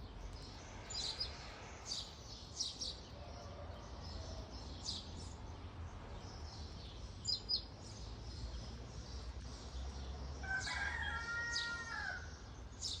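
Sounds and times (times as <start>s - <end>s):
small birds chirping: 0.0s - 3.2s, 3.8s - 13.0s
rooster crowing: 10.4s - 12.3s.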